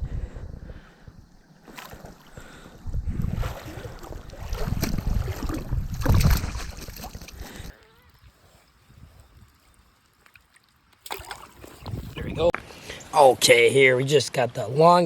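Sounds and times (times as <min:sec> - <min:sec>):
wind rumbling on microphone: 0:00.0 - 0:09.8, 0:11.7 - 0:12.6
water splashing and sloshing: 0:01.4 - 0:07.9, 0:09.5 - 0:12.8.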